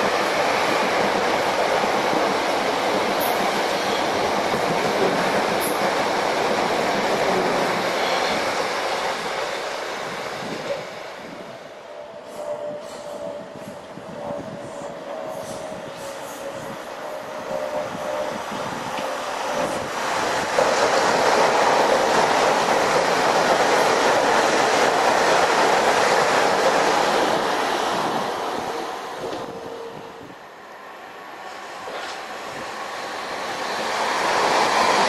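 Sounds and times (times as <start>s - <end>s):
electric train whine: 0.0s - 35.0s
train wheels rushing on rails: 0.0s - 35.0s.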